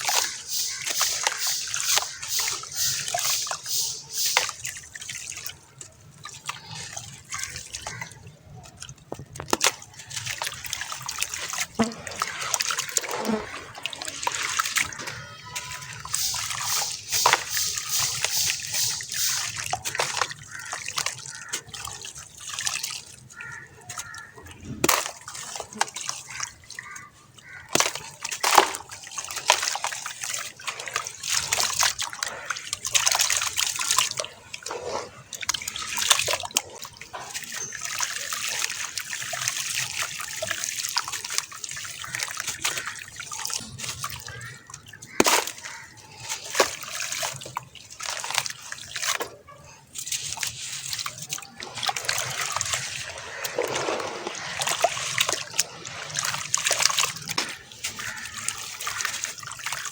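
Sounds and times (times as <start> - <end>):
fizzing crackle in water: 0.0 - 7.5, 11.7 - 21.5
water sloshing and dripping: 0.0 - 59.9
water splashes: 0.0 - 59.9.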